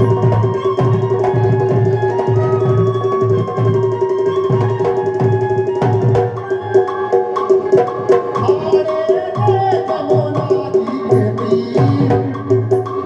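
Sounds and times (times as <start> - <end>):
folk melody: 0.0 - 9.3
drum beating steady rhythm: 0.0 - 13.0.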